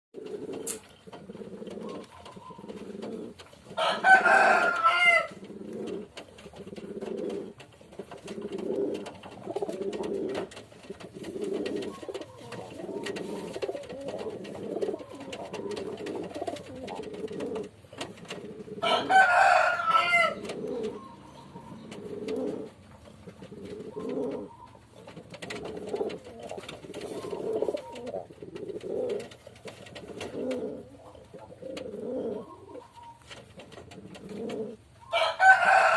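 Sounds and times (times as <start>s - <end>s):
dove cooing: 0.2s - 35.9s.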